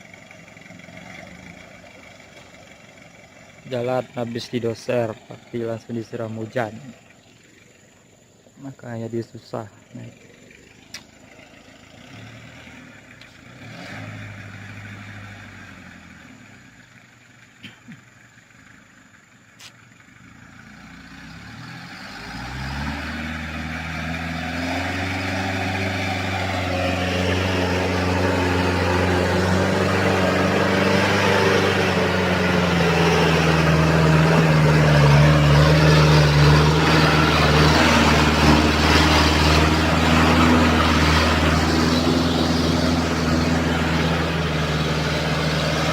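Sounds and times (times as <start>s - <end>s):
car engine straining under load: 10.1s - 45.9s.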